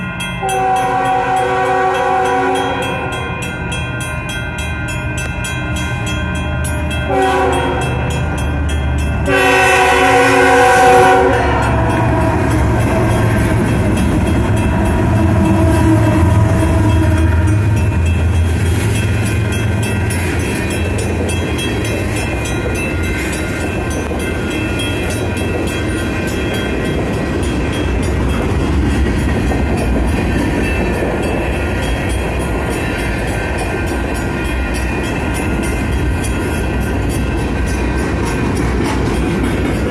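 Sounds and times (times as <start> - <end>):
crossing bells ringing: 0.0 - 39.9
train rumbling: 0.0 - 39.9
wheels clacking on rails: 0.0 - 39.9
train horn blasts: 0.4 - 3.3, 7.0 - 8.4, 9.2 - 13.4, 14.5 - 18.3.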